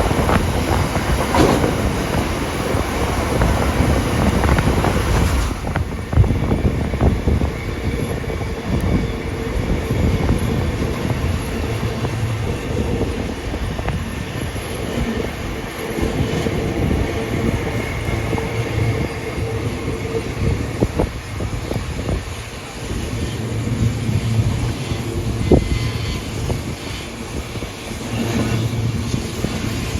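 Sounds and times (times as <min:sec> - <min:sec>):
wheels clicking over rails: 0:00.0 - 0:06.2
train carriage rumble: 0:00.0 - 0:29.9.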